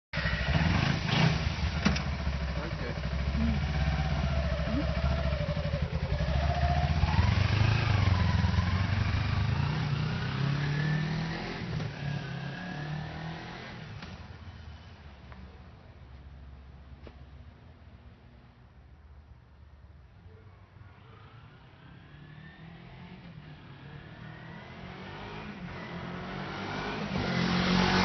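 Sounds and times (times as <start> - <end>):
motorcycle engine revving: 0.2 - 14.8, 20.8 - 28.0.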